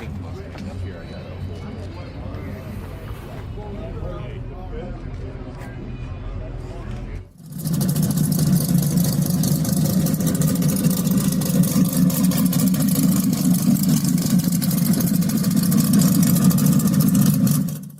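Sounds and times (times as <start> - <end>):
car engine running: 7.3 - 17.9.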